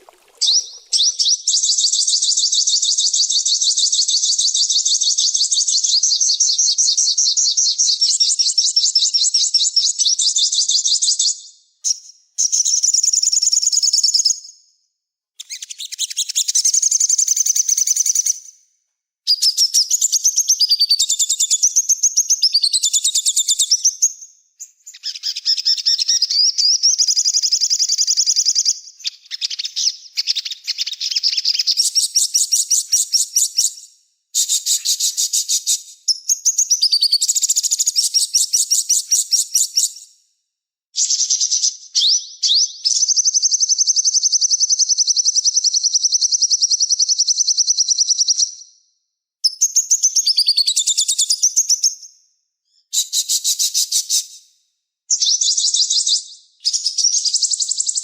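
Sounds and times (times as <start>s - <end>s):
songbird trilling: 0.0s - 1.4s.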